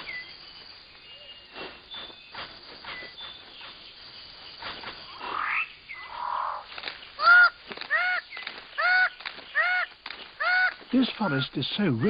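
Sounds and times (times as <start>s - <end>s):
bird calls rising and falling: 4.6s - 12.0s.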